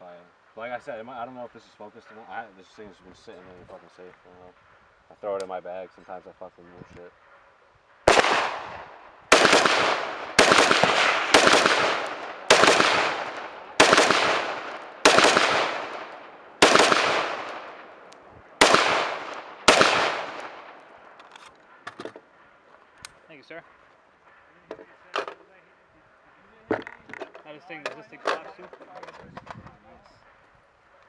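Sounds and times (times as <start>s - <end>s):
rifle shots echoing: 8.0s - 21.8s.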